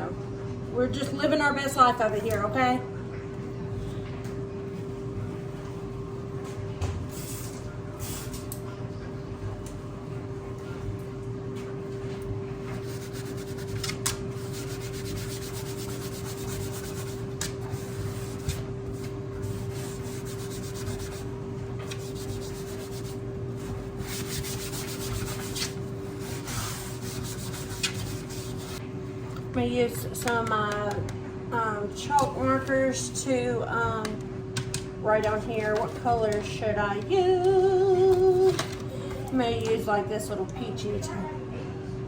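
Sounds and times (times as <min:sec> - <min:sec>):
household appliances humming: 0:00.0 - 0:40.8
cloth rubbing a board: 0:12.8 - 0:21.3, 0:21.9 - 0:28.8.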